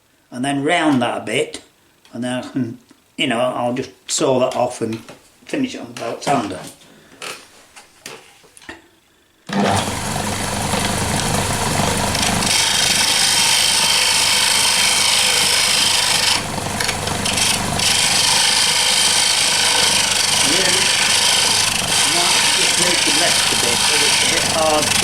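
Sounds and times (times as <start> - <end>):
tool scraping spinning wood: 9.5 - 25.0
wood lathe motor running: 9.5 - 25.0.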